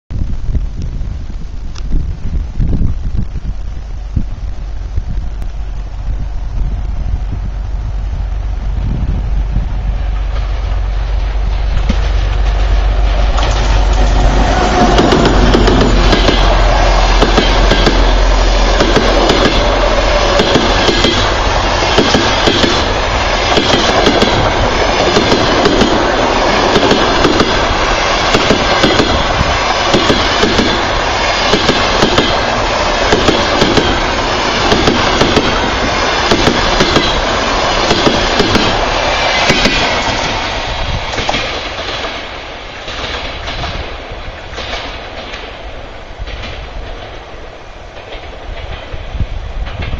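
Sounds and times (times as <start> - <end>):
passenger train passing: 1.0 - 49.9
wheels clicking over rail joints: 11.2 - 40.4.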